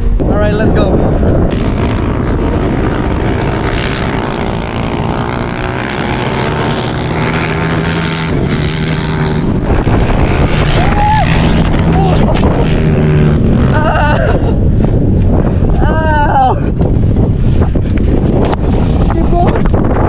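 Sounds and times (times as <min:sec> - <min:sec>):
wind buffeting microphone: 0:00.0 - 0:20.0
vehicle engine droning: 0:01.3 - 0:15.8.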